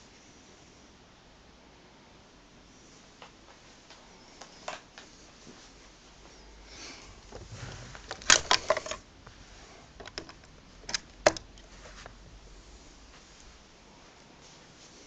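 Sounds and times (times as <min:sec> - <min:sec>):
vacuum cleaner handling clicks: 0:08.1 - 0:09.0, 0:10.0 - 0:11.6.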